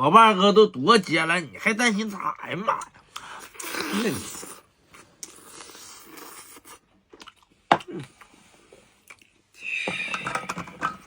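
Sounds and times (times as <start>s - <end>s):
person chewing: 3.1s - 9.5s.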